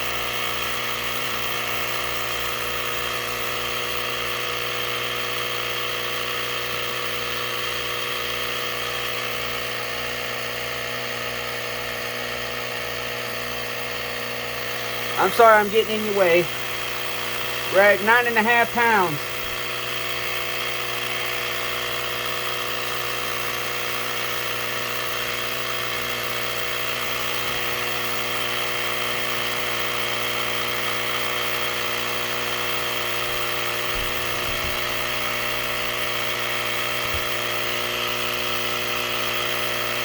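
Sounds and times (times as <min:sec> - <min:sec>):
tire inflator compressor humming: 0:00.0 - 0:40.0.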